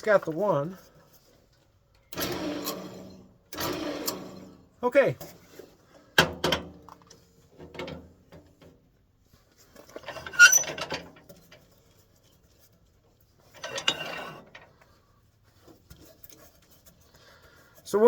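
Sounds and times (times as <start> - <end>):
metal tools clinking and clattering: 13.4 - 14.7.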